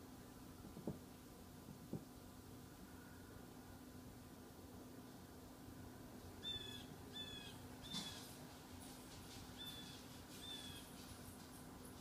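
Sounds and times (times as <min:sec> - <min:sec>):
bird calling: 0:06.4 - 0:08.3, 0:09.6 - 0:11.0.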